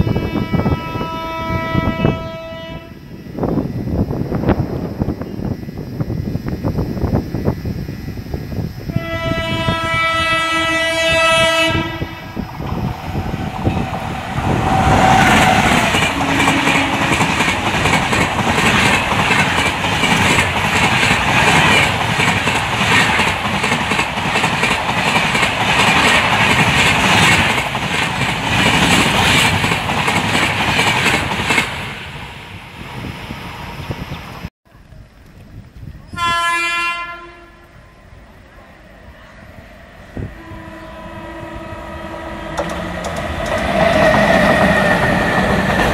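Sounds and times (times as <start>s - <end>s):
locomotive horn: 0.0s - 3.0s, 8.9s - 12.4s, 14.4s - 17.5s, 36.1s - 37.8s, 40.2s - 42.9s
train passing close by: 0.0s - 34.5s, 35.8s - 45.9s.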